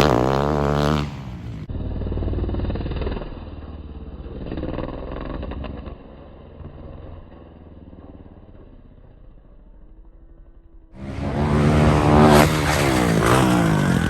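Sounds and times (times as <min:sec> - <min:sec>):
dirt bike engine revving: 0:00.0 - 0:06.1, 0:11.0 - 0:14.0.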